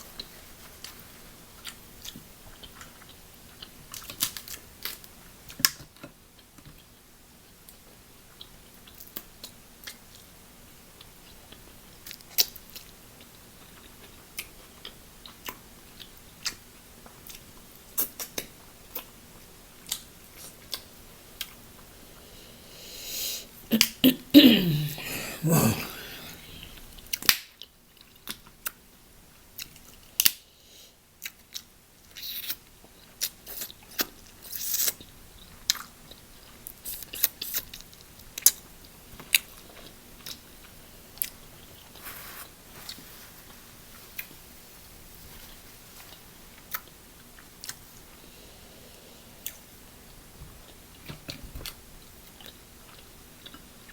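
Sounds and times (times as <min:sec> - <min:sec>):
chewing and mouth sounds: 0:50.6 - 0:53.9.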